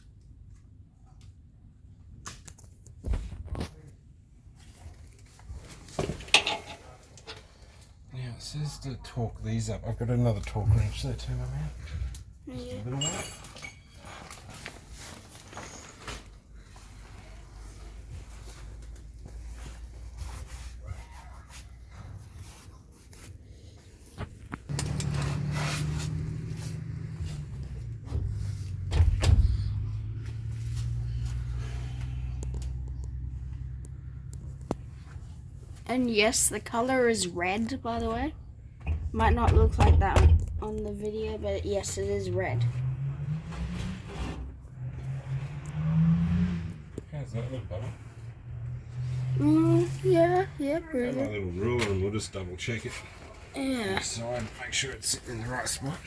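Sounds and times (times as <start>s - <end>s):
tools and bolts rattling: 5.8s - 7.5s, 13.0s - 14.4s.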